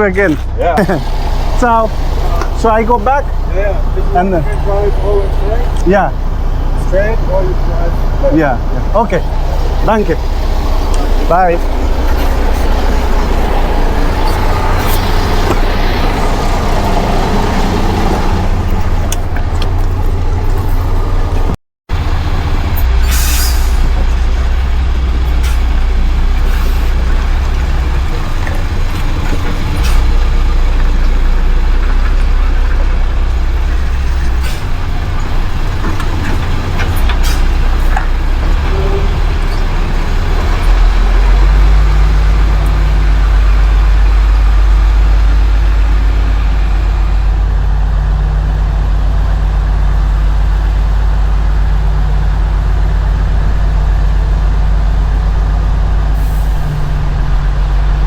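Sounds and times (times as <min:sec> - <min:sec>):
truck diesel engine idling: 0:00.0 - 0:58.0
air brake hiss: 0:23.0 - 0:23.9.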